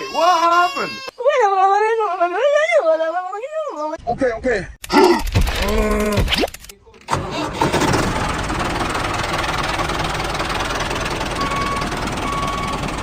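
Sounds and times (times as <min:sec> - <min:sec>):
engine starting and running: 0:05.3 - 0:13.0.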